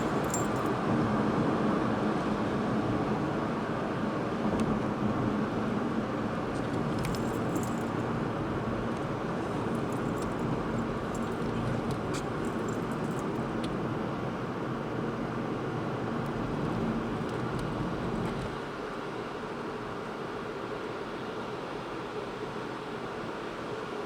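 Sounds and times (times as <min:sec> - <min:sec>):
car driving road noise: 0:00.0 - 0:18.6.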